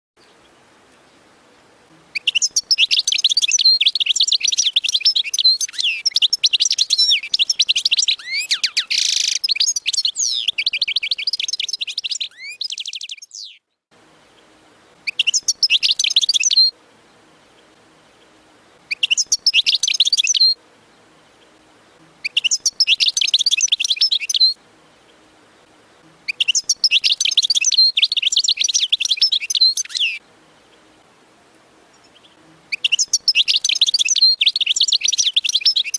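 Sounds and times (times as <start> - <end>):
finch singing high trills: 2.1 - 13.6, 15.0 - 16.7, 22.2 - 24.6, 26.2 - 30.2, 31.9 - 35.9.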